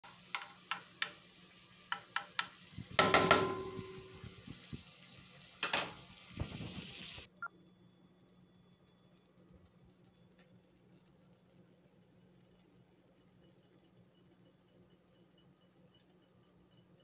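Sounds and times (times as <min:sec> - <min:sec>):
spatula tapping and scraping pan: 0:00.0 - 0:04.5, 0:05.6 - 0:06.0
salsa sizzling in grill pan: 0:00.0 - 0:07.3
ringing clang of metal: 0:03.0 - 0:04.3.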